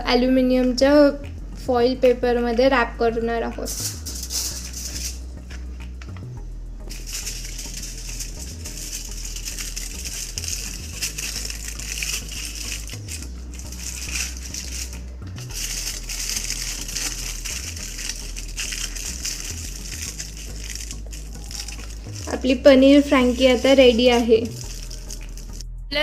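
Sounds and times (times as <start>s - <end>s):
aluminium foil crinkling: 3.7s - 5.2s, 6.9s - 25.6s.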